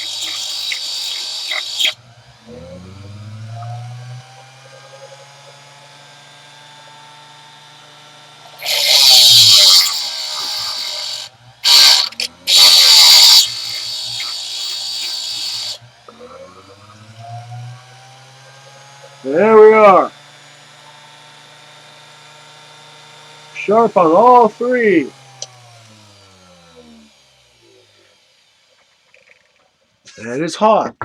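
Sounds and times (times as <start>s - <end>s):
tool bit grinding on wheel: 0.0s - 2.0s, 8.5s - 16.2s, 23.6s - 26.1s
grinder motor humming: 0.0s - 29.6s.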